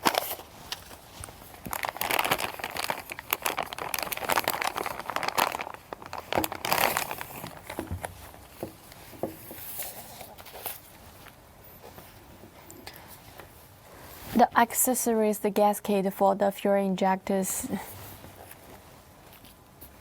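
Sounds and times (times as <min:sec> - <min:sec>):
plastic wrap crinkling: 0:00.0 - 0:08.6.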